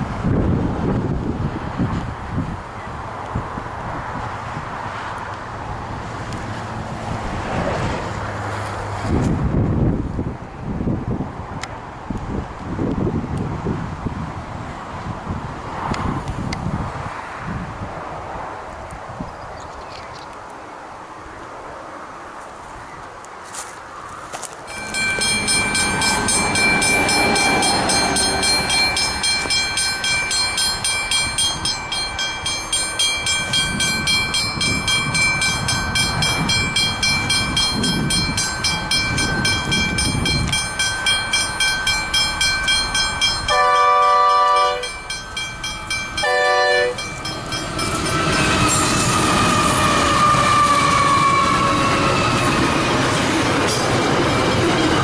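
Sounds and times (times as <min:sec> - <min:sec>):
train rumble: 0:00.0 - 0:19.1, 0:23.4 - 0:55.0
wheels on rails: 0:22.4 - 0:55.0
level crossing bell ringing: 0:24.7 - 0:48.7
wheels squealing: 0:24.7 - 0:55.0
train horn blasts: 0:43.5 - 0:45.0, 0:46.2 - 0:47.1.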